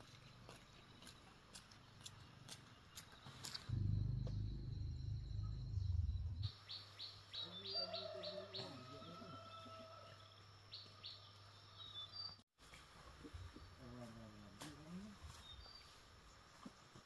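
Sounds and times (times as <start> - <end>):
small birds chirping: 0.0 - 9.0
loud low rumble: 3.7 - 6.5.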